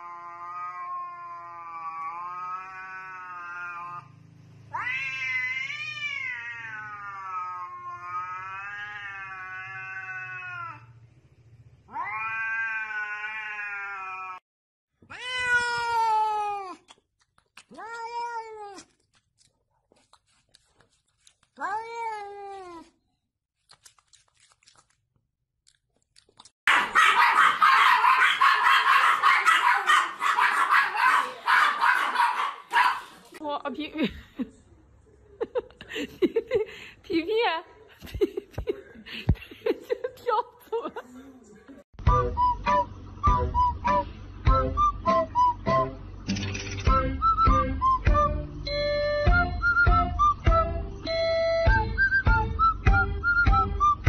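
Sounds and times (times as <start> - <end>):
cat meowing: 0.0 - 4.1, 4.7 - 11.0, 11.9 - 14.4, 17.7 - 19.0, 21.6 - 22.9
cat yowling: 0.0 - 4.1, 4.7 - 11.0, 11.9 - 14.4, 15.1 - 16.8, 17.7 - 19.0, 21.6 - 22.9.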